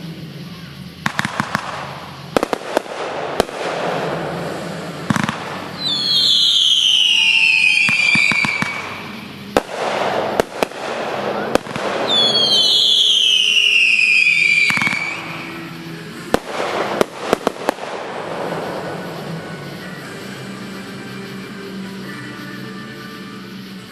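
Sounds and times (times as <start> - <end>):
firework bangs: 0.0 - 23.9
whistling firework shells: 0.0 - 23.9
crackling pops: 1.0 - 19.9.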